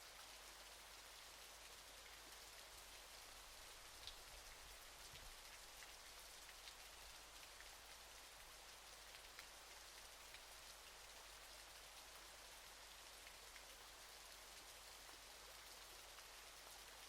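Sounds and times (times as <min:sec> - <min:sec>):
water drips and splashes: 0:01.8 - 0:15.3.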